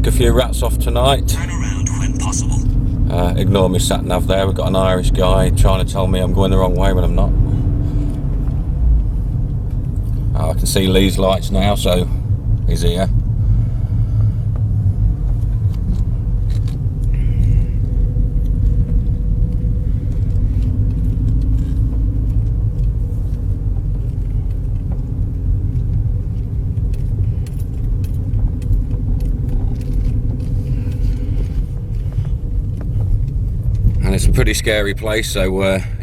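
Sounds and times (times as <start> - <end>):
car engine and road rumble: 0.0 - 36.0
light clicks and rattles: 14.6 - 35.1.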